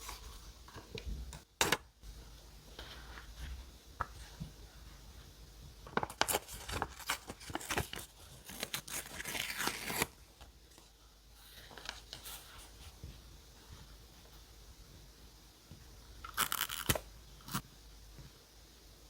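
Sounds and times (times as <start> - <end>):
paper rustling: 5.9 - 10.2
paper tearing: 6.3 - 10.2.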